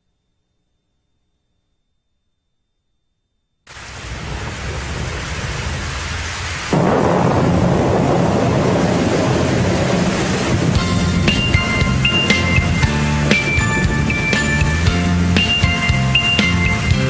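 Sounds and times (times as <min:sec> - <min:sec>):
rain hissing: 0:03.7 - 0:17.0
thunder rumbling: 0:03.7 - 0:17.0.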